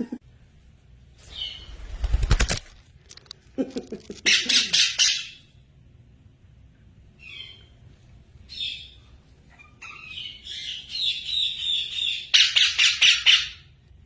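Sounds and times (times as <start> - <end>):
parrot chirping and squawking: 4.2 - 5.6, 7.2 - 7.8, 8.5 - 13.8.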